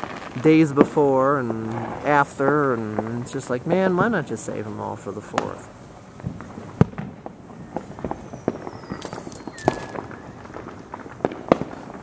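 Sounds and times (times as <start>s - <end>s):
loud firework bang: 0.0s - 3.2s, 6.2s - 12.0s
firecrackers popping and banging: 0.0s - 12.0s
firework falling whistle: 6.2s - 12.0s.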